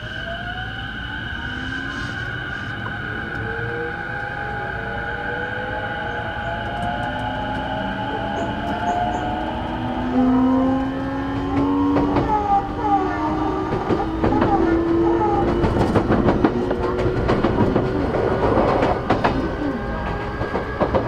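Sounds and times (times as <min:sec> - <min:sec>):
electric train motor whine: 0:00.0 - 0:21.0
train running rumble: 0:00.0 - 0:21.0
wheel clicks over rail joints: 0:06.7 - 0:21.0.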